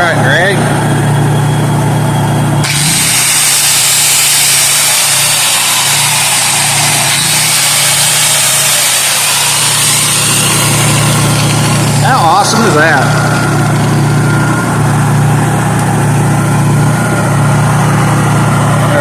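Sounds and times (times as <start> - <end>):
generator engine hum: 0.0 - 19.0
electric grinder whining: 2.4 - 19.0.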